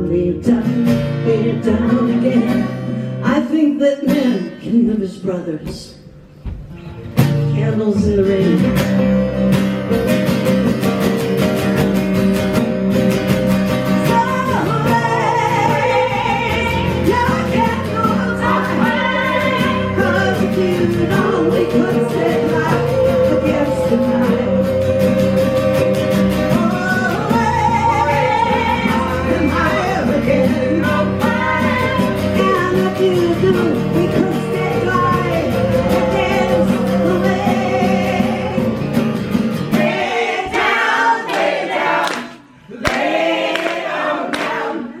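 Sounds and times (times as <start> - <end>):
group of voices singing: 0.4 - 3.4, 14.0 - 45.0
live band playing: 4.0 - 40.3.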